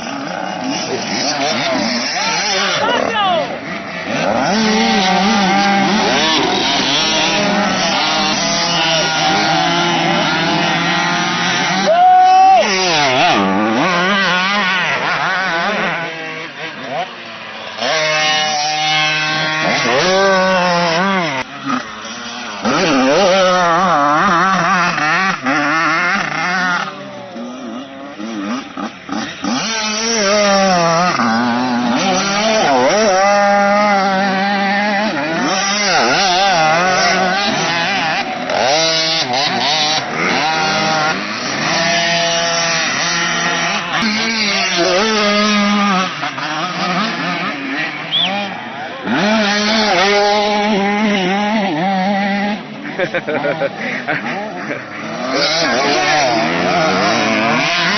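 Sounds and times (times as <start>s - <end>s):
motorcycle engines revving: 0.0s - 57.9s.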